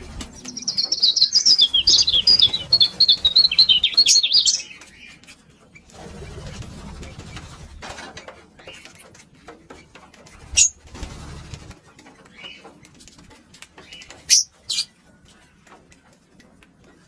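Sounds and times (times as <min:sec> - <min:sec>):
lovebirds chirping shrilly: 0:00.0 - 0:04.8
light clicking and scratching: 0:04.6 - 0:17.0.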